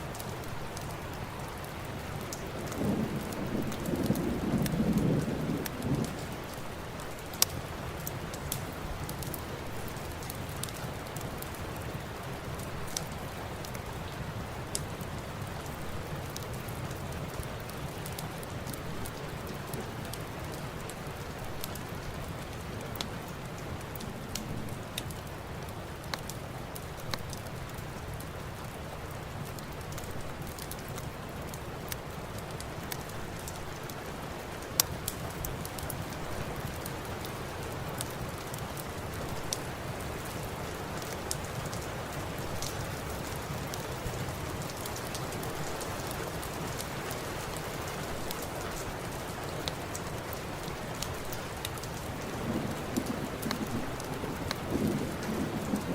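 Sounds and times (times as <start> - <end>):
steady rain: 0.0 - 55.9
wood fire crackling and popping: 0.0 - 55.9.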